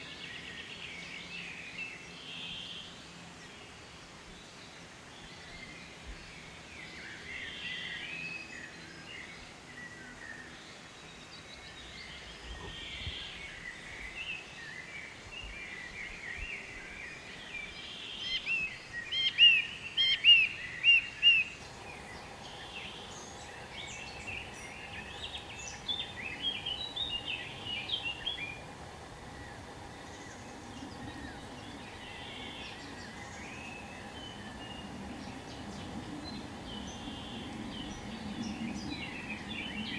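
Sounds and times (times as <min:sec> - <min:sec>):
outdoor background noise: 0:00.0 - 0:39.9
birds calling and chirping: 0:21.6 - 0:39.9.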